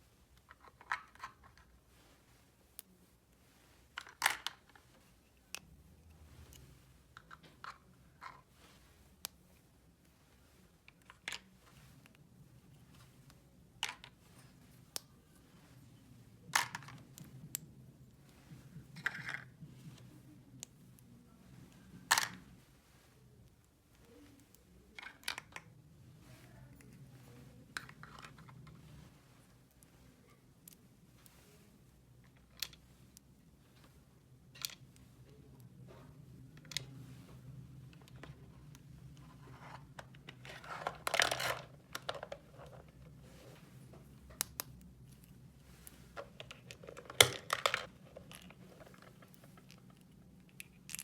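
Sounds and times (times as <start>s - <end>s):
toy pieces rustling: 3.9s - 4.9s, 25.0s - 25.7s, 37.8s - 43.1s, 45.3s - 51.0s.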